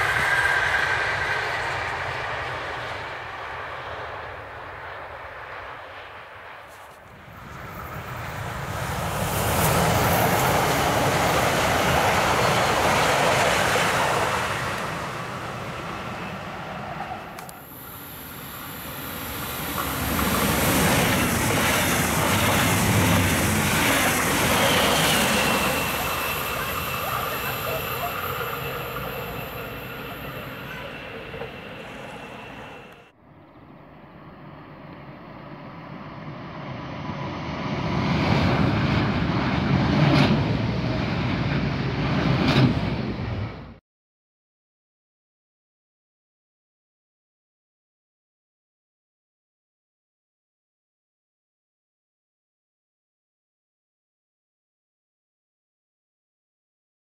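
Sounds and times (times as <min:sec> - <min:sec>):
electric trains passing: 0:00.0 - 0:43.8
thin high wheel squeal: 0:24.6 - 0:33.1.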